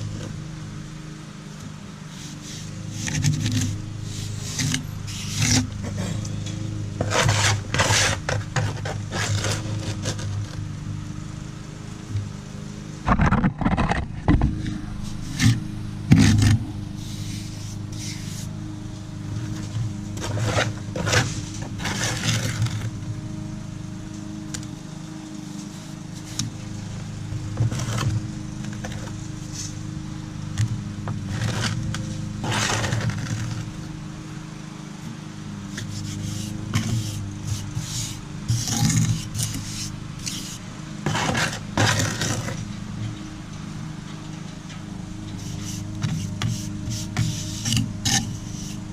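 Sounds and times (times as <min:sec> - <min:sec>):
steady low hum: 0:00.0 - 0:48.9
hand tool scraping mortar: 0:02.1 - 0:10.6, 0:13.1 - 0:18.5, 0:19.4 - 0:22.9, 0:27.6 - 0:29.8, 0:30.6 - 0:33.7, 0:35.7 - 0:42.7, 0:45.3 - 0:48.9.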